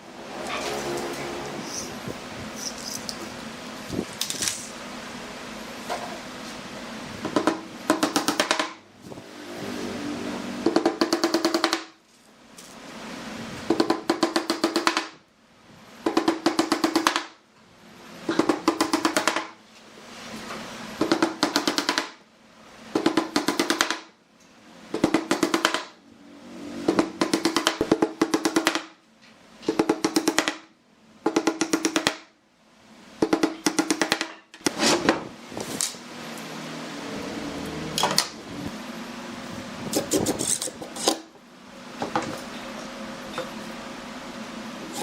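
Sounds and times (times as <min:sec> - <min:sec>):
power tool steady hum: 0:00.0 - 0:11.8, 0:24.4 - 0:28.4, 0:35.5 - 0:45.0.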